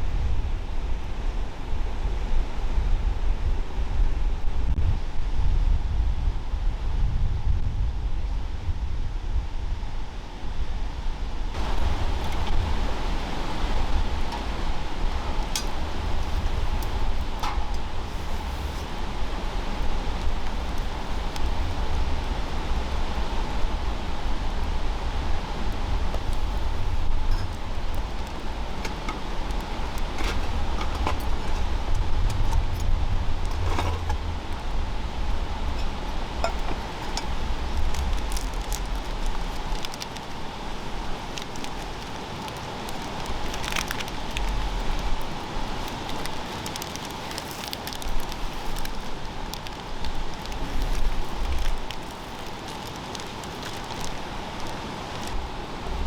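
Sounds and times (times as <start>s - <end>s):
steady hiss: 10.0s - 56.0s
low rumble: 11.3s - 39.8s
campfire crackling and popping: 11.5s - 56.0s.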